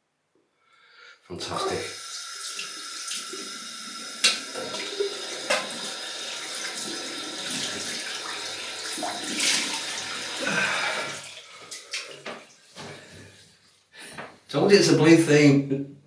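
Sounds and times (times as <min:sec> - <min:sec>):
tap running into sink: 0:02.5 - 0:10.4.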